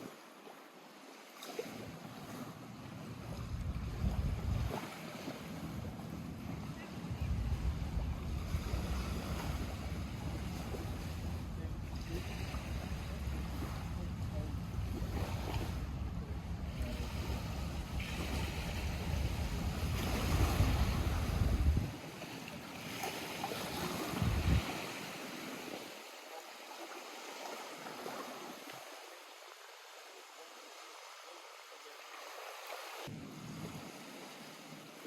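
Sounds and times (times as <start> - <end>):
lake water lapping: 0.0 - 35.0
heavy low rumble: 7.1 - 21.9.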